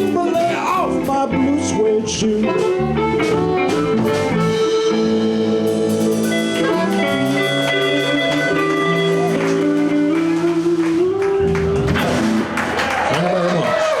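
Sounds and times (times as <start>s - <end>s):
live blues band playing: 0.0s - 14.0s
drum hits: 5.9s - 13.9s.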